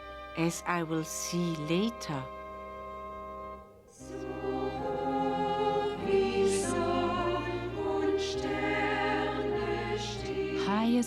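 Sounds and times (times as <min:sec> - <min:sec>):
instrumental accompaniment: 0:00.0 - 0:11.0
choir singing a hymn: 0:04.0 - 0:11.0.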